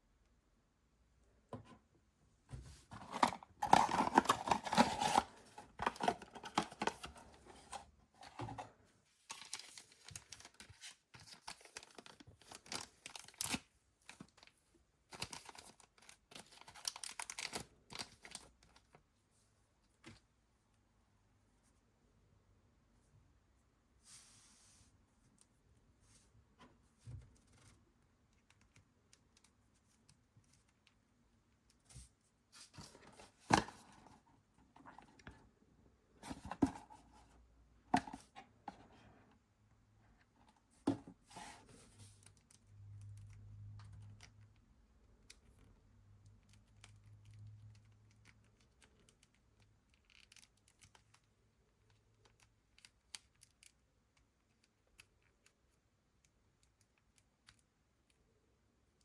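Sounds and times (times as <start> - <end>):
packaging rustling: 2.9 - 8.7.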